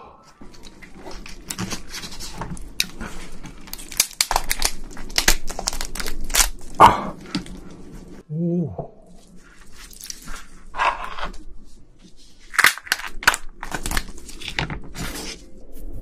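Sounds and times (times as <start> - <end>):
prawn shell cracking and tearing: 0.4 - 7.8, 9.7 - 10.5, 12.4 - 15.3.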